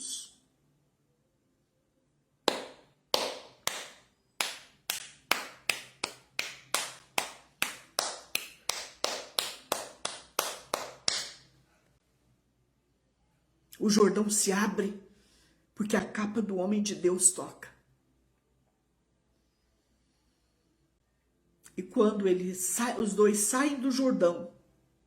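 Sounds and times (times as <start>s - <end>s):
sharp hand strikes: 2.5s - 7.8s.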